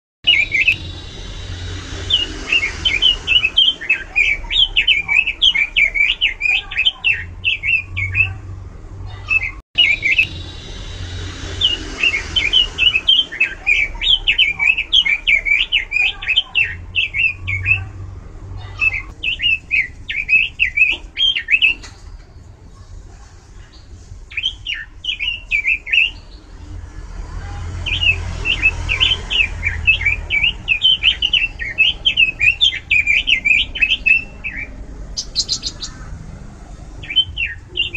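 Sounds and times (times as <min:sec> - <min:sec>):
bird warbling song: 0:00.3 - 0:08.4, 0:09.2 - 0:17.9, 0:18.6 - 0:22.5, 0:27.9 - 0:36.4, 0:37.0 - 0:37.9.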